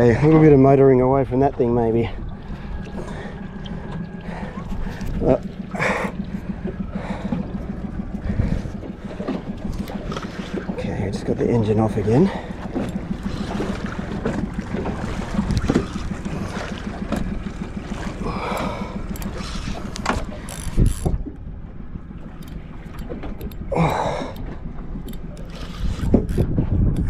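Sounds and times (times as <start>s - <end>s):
fishing reel clicking: 18.2s - 21.1s, 22.4s - 27.0s.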